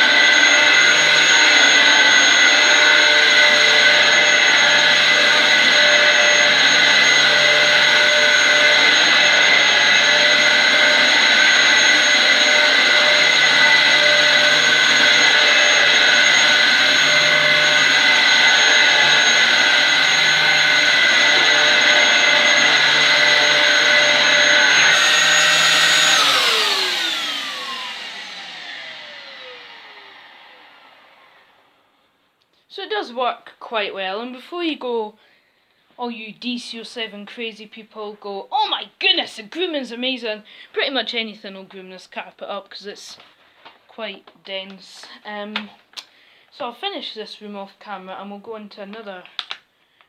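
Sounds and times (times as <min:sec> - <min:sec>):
vacuum motor spinning down: 0:00.0 - 0:31.7
vacuum cleaner whining: 0:00.0 - 0:31.9.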